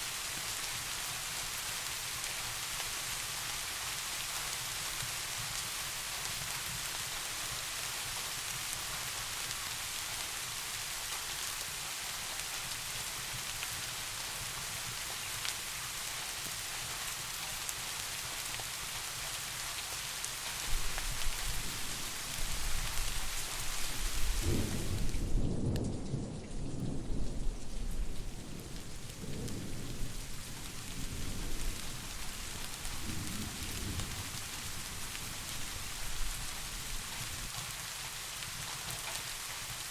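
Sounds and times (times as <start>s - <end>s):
steady rain: 0.0s - 39.9s
distant thunder rumbling: 20.7s - 37.0s.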